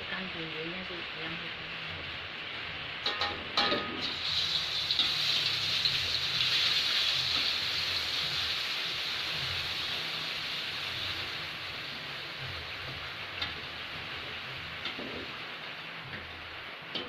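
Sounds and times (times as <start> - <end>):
spice paste sizzling in oil: 0.1 - 17.0.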